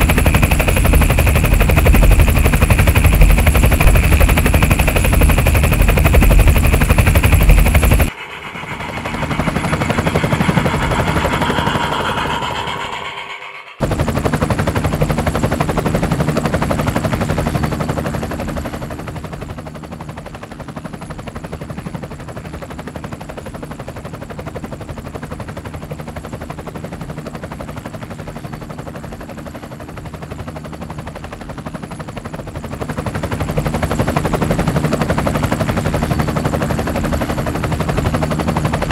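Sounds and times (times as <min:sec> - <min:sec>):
toy helicopter rotor buzzing: 0:00.0 - 0:16.6
quieter rising hum: 0:01.7 - 0:13.8.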